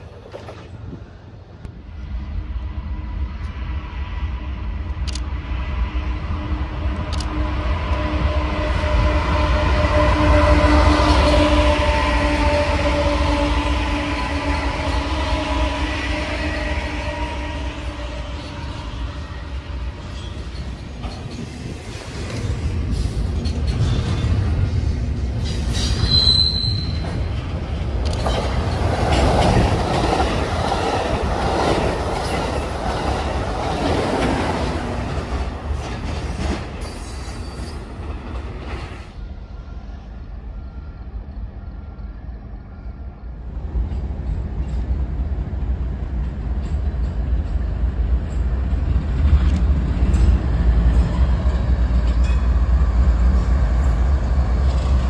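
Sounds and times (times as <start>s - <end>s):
diesel locomotive engine rumble: 0.0s - 55.0s
freight train rumbling and rattling: 0.0s - 55.0s
wheel squeal: 25.5s - 27.2s.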